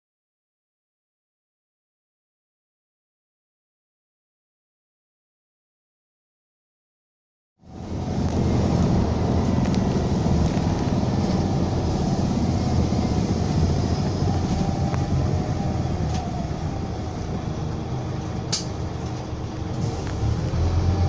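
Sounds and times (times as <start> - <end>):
diesel engine low rumble: 7.6 - 21.0.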